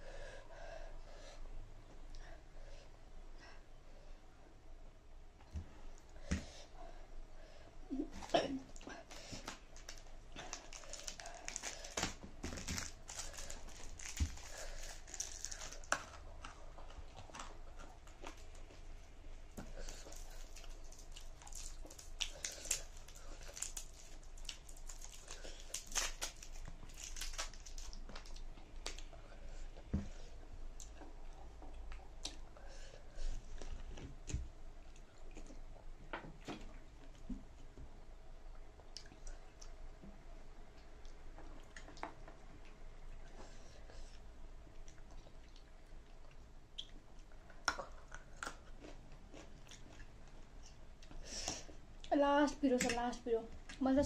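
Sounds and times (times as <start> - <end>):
person chewing noodles: 9.1 - 35.8, 40.6 - 52.1
mouth clicks and smacks: 44.8 - 48.6.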